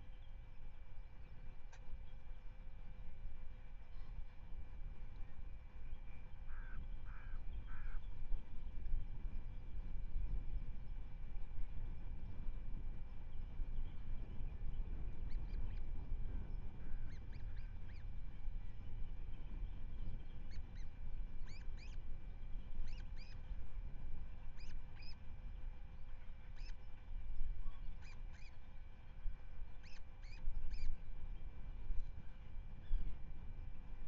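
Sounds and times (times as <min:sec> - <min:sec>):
wind rumble on microphone: 0:00.0 - 0:34.0
osprey chirping: 0:29.8 - 0:30.9.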